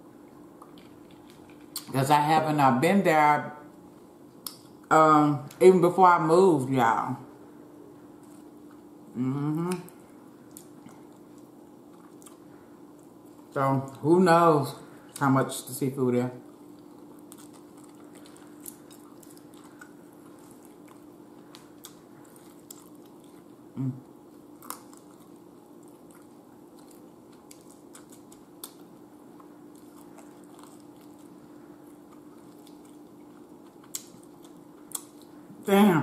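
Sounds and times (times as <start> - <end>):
faint steady hum: 0.0 - 36.0
person humming briefly: 9.2 - 9.9, 23.8 - 24.0
person chewing chicken wing: 9.6 - 13.6, 16.4 - 35.4.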